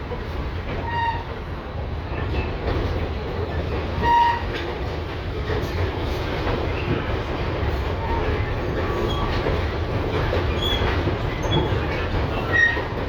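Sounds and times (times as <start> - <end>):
tram rumbling on rails: 0.0 - 13.0.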